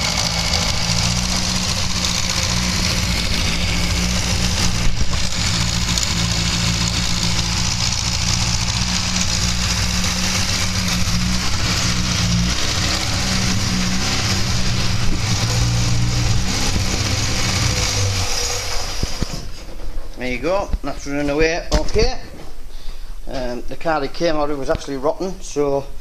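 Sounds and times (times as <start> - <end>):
car engine running steadily: 0.0 - 19.6.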